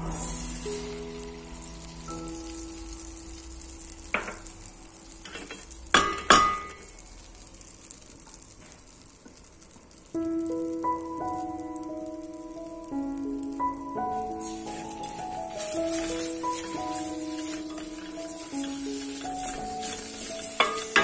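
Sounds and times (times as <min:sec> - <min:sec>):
soft background music: 0:00.0 - 0:05.2, 0:10.2 - 0:21.0
food sizzling in a pan: 0:00.0 - 0:21.0.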